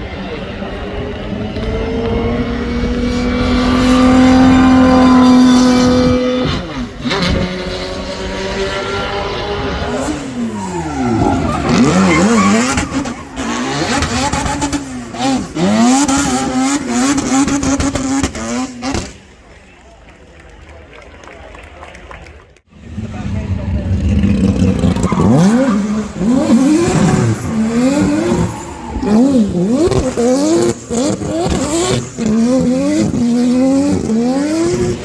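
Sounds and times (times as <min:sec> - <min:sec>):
car engine revving: 0:00.0 - 0:19.2, 0:22.7 - 0:35.0
tyres squealing: 0:10.2 - 0:15.7.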